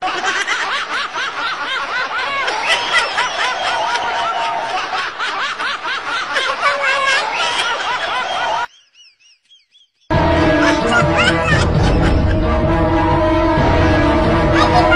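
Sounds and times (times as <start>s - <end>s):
high-pitched snickering laughter: 0.0s - 8.7s, 10.6s - 12.4s.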